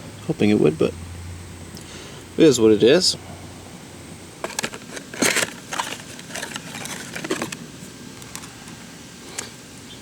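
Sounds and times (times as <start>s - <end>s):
small objects clicking and knocking: 4.4s - 7.6s.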